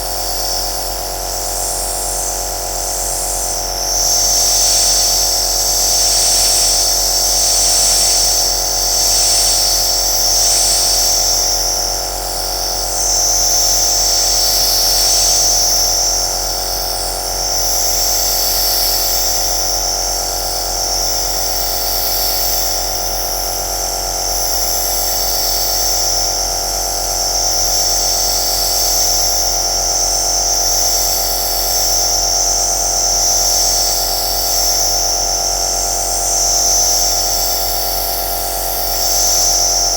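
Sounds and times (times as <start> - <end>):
compressor motor hum: 0.0 - 39.9.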